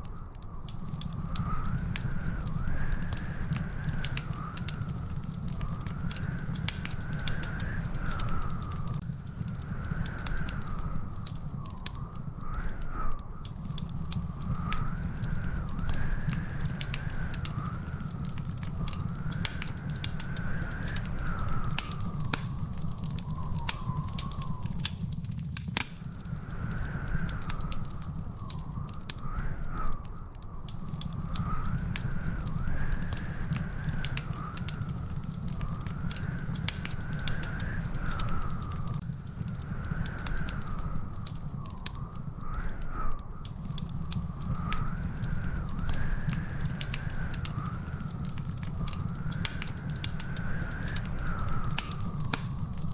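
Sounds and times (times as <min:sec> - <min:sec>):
wood fire crackling: 0:00.0 - 0:52.9
wavering whistling tone: 0:09.6 - 0:25.2.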